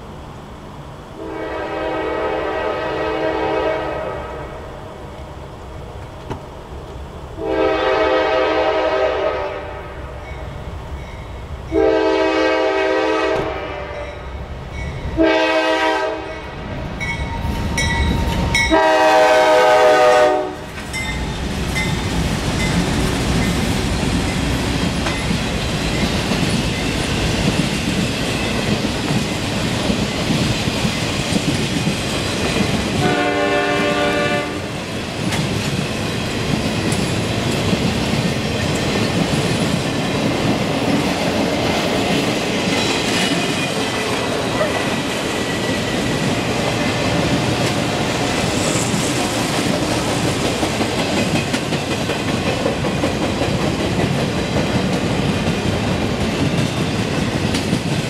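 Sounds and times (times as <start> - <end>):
locomotive air horn blasts: 1.2 - 4.6, 7.4 - 10.1, 11.7 - 14.1, 15.2 - 16.4, 18.7 - 20.7, 33.0 - 34.7
train wheels rumbling and clattering: 2.4 - 9.4, 10.0 - 58.0.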